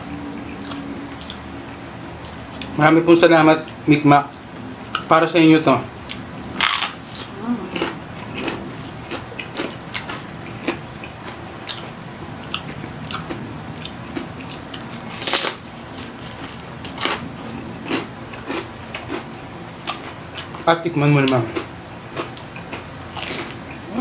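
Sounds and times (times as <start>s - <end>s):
crunchy chewing of fried skin: 0.5s - 2.8s, 6.0s - 23.8s.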